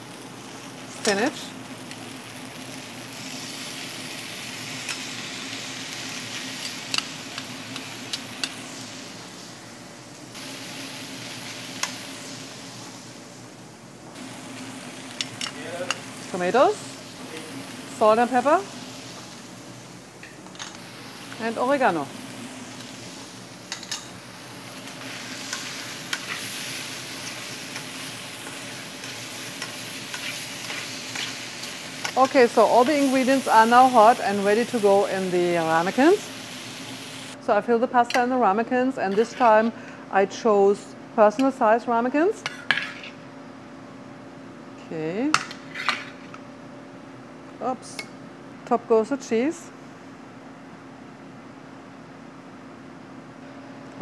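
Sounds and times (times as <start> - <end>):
food sizzling in oil: 0.0 - 37.4.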